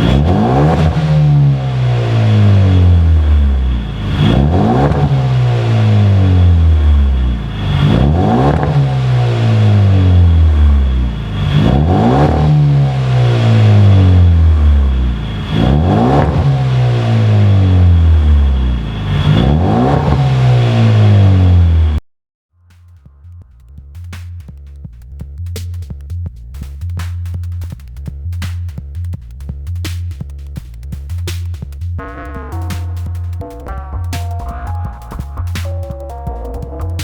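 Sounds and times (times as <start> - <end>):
car engine revving: 0.0 - 22.0, 32.0 - 37.0.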